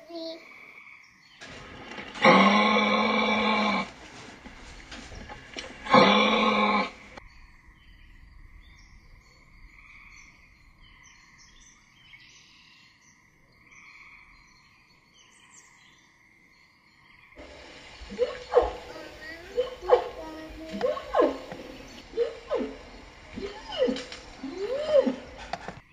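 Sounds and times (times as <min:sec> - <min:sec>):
insects chirring: 0:00.8 - 0:11.9, 0:16.2 - 0:25.8
bird chirps: 0:07.2 - 0:25.9
loud voice-like sound: 0:18.2 - 0:22.8.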